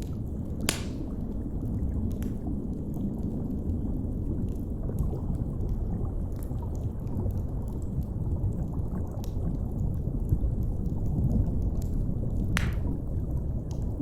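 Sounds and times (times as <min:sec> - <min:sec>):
deep underwater rumble: 0:00.0 - 0:14.0
fire crackling: 0:00.0 - 0:14.0.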